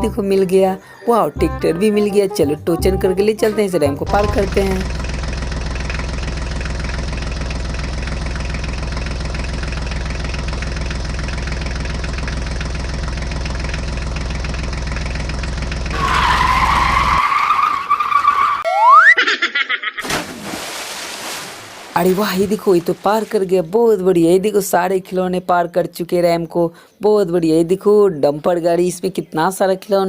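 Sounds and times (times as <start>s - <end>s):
rising glide: 16.2s - 19.4s.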